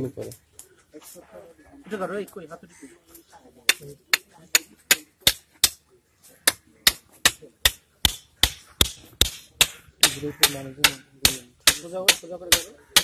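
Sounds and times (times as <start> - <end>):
hammer blows ringing: 6.5 - 13.0.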